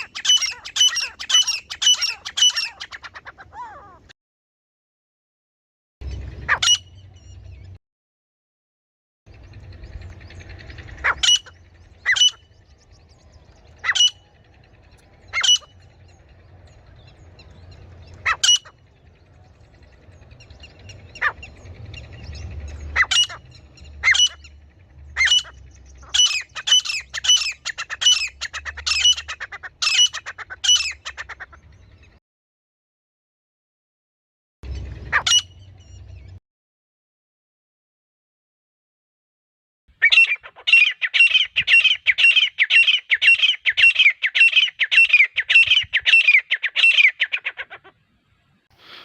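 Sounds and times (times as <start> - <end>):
francolin calling: 0.0 - 4.0, 10.0 - 31.7
faint low rumble: 6.0 - 7.8, 9.3 - 29.8.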